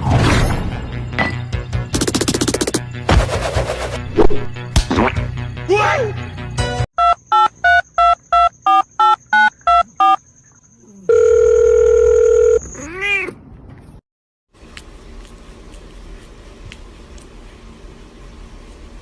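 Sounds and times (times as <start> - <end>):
music: 0.4 - 6.9
quick electronic beeps: 7.0 - 10.2.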